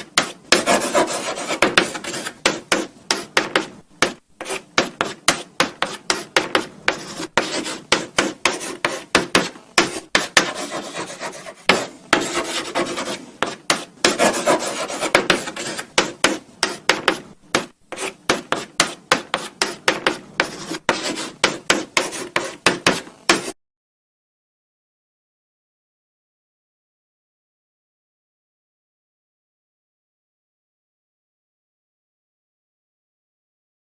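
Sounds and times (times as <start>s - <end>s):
chalk scratching on blackboard: 0.0s - 23.6s
chalk tapping on blackboard: 0.0s - 23.6s.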